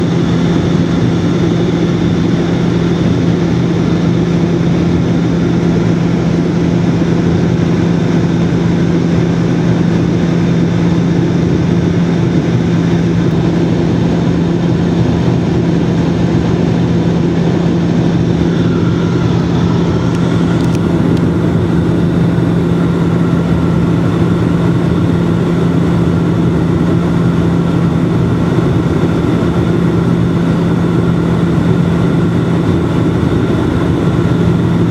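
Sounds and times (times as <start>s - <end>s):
turboprop engines droning: 0.0s - 34.9s
faint higher whine: 7.0s - 34.9s.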